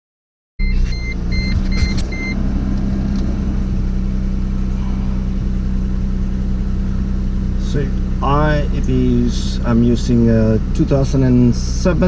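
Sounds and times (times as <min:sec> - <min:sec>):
car warning chime beeps: 0:00.6 - 0:02.4
car engine idling: 0:00.6 - 0:12.0.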